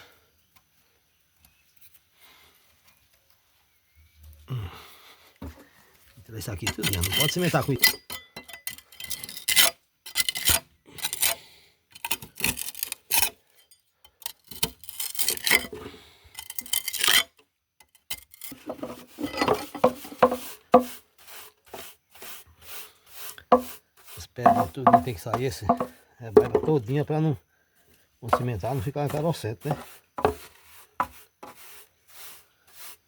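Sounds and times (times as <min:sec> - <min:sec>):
tool scraping stones: 0:06.4 - 0:27.1, 0:27.8 - 0:33.0.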